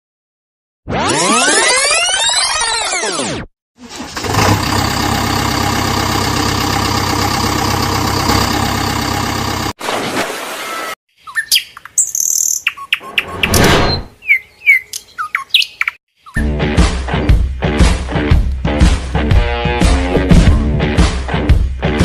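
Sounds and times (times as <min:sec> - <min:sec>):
birds chirping: 0:11.2 - 0:16.4.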